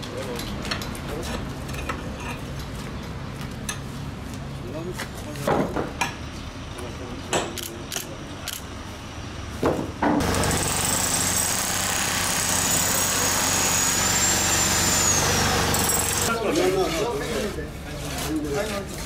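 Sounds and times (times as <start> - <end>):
power tool whining: 10.2 - 16.4.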